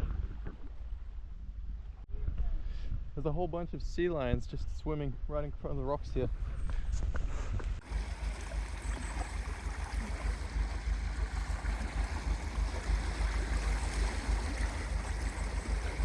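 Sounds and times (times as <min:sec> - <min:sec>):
wind buffeting microphone: 0:00.0 - 0:16.0
sea water washing against rocks: 0:07.8 - 0:16.0.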